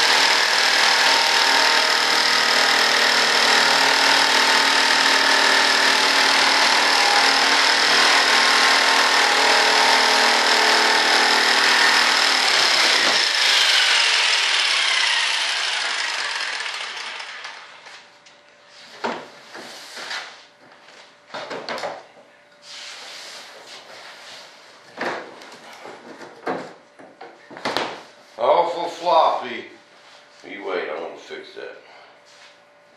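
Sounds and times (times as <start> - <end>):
power saw cutting: 0.0 - 18.0.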